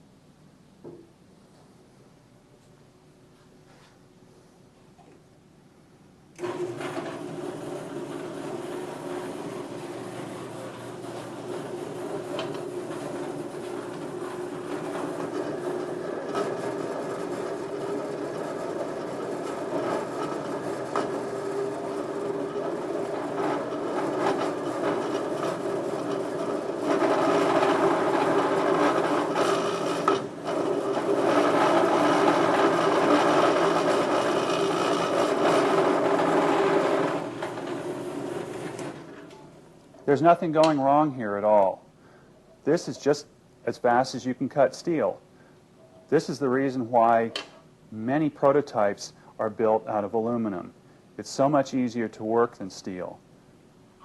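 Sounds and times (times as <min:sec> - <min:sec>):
band saw cutting steel: 0:06.4 - 0:39.2.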